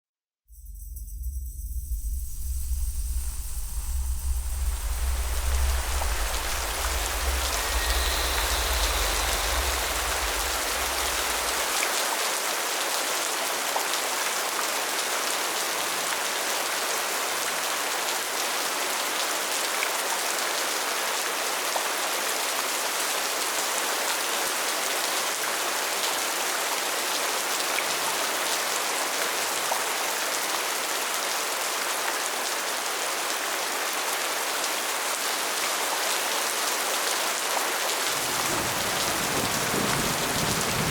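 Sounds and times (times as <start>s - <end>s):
deep low rumble: 0.5s - 11.9s
steady rain: 2.6s - 40.9s.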